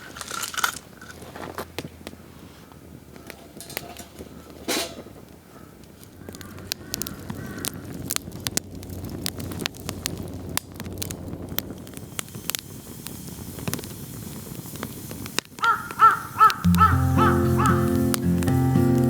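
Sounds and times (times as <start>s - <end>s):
firewood crackling and popping: 0.0s - 19.0s
crow cawing: 5.5s - 8.0s, 15.6s - 18.0s.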